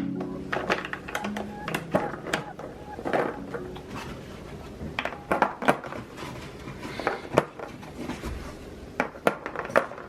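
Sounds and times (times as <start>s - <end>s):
household items knocking and clattering: 9.0s - 10.0s.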